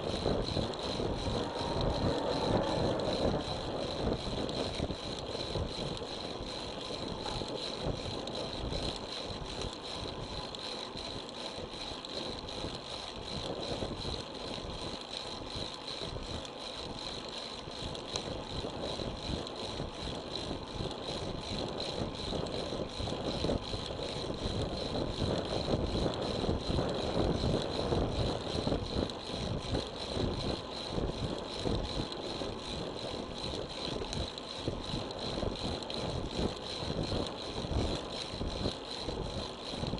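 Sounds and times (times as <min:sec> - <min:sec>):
thin high whine: 0:00.0 - 0:08.2
wind rushing over microphone: 0:00.0 - 0:09.4
bicycle rattling over road: 0:00.0 - 0:39.9.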